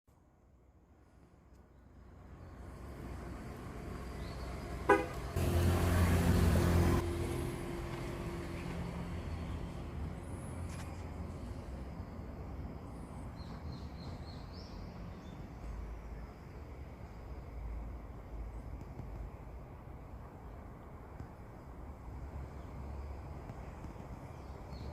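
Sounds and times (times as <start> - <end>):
car engine: 2.2 - 10.8
car horn: 4.8 - 6.3.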